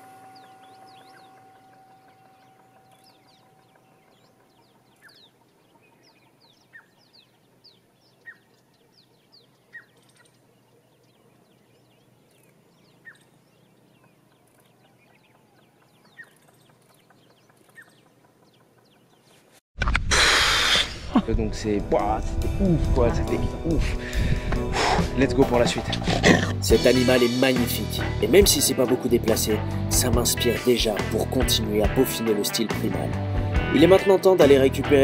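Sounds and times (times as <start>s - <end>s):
soft high bird chirps: 0.0s - 19.6s.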